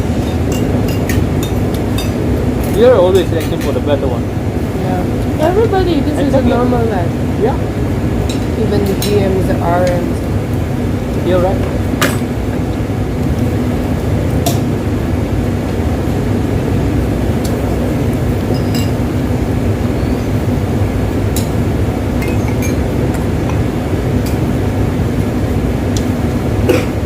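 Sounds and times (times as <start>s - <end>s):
low rushing background noise: 0.0s - 27.0s
tableware clinking: 11.6s - 12.4s, 18.5s - 19.0s, 22.2s - 22.8s.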